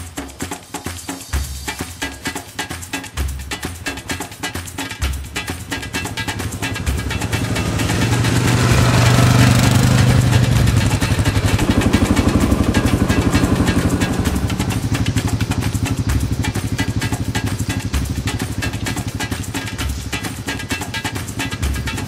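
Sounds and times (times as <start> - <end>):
atv engine revving: 5.0 - 22.0.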